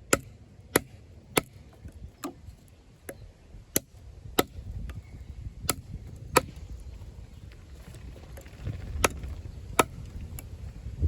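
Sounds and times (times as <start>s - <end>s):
knife chopping into wooden log: 0.1s - 2.4s, 5.7s - 6.6s.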